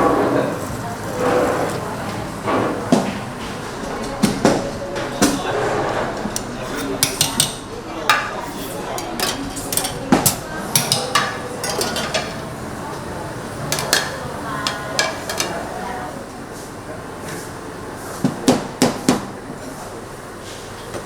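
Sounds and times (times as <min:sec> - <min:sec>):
utensils and dishes clinking: 0:00.0 - 0:16.2
restaurant room noise: 0:00.0 - 0:21.0.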